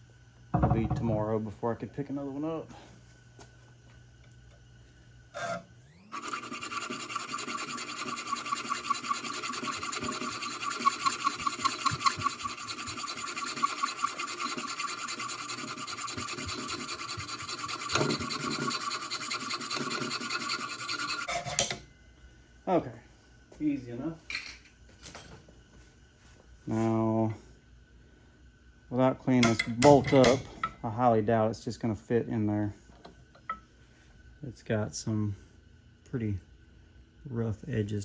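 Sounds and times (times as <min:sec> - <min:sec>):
saw cutting steel bolt with whine: 0:05.3 - 0:21.8.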